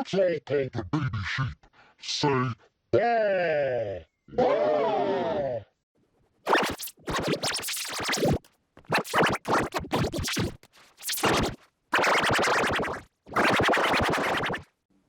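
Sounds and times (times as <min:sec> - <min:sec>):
distorted cartoon voice: 0:06.5 - 0:14.6.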